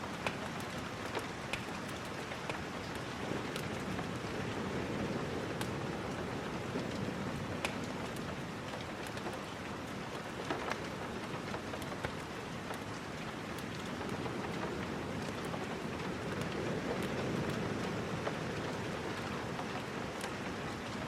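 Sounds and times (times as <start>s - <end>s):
steady rain hiss: 0.0s - 21.0s.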